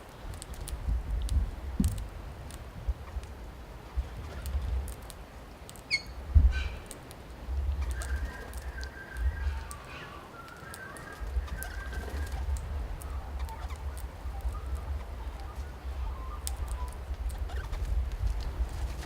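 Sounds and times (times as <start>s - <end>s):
birds calling: 5.8s - 19.0s.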